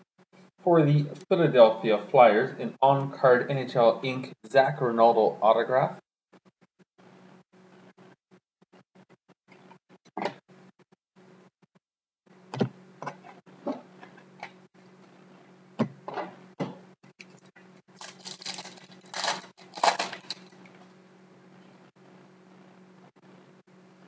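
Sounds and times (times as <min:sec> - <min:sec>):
cards rustling: 0:18.0 - 0:20.6.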